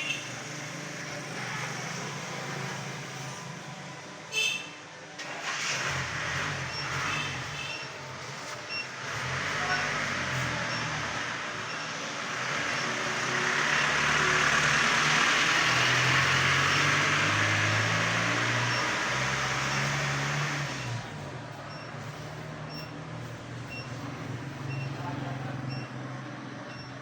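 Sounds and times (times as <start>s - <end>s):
road noise: 0.0s - 27.0s
vehicle engine hum: 5.2s - 27.0s.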